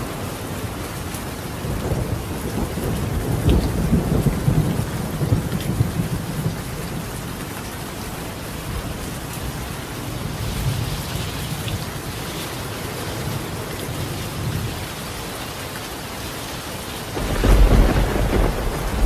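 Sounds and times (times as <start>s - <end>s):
heavy rain on a tiled roof: 0.0s - 19.0s
thunder rumbling: 1.6s - 7.2s, 17.1s - 19.0s.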